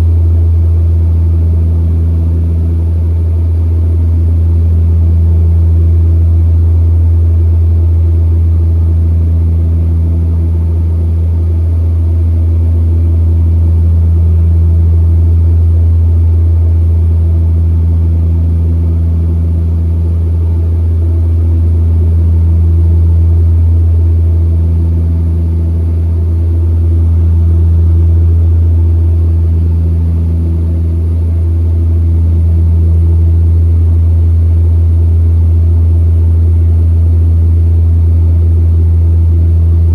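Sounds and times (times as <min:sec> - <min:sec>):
turboprop engines droning: 0:15.2 - 0:39.9.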